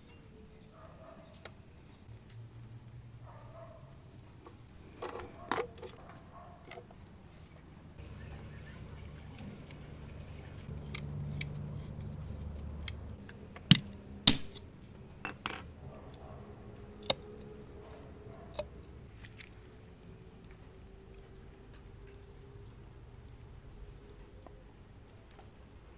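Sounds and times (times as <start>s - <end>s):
low rumbling: 8.0s - 14.3s
metal tools clinking: 15.2s - 16.4s.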